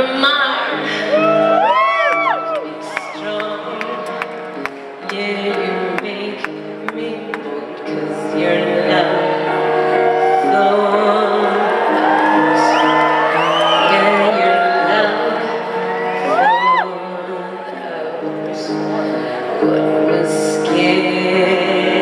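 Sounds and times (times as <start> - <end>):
live concert music with held chords: 0.0 - 22.0
audience whooping and whistling: 1.1 - 4.5, 9.3 - 10.8, 11.4 - 14.9, 15.6 - 16.8.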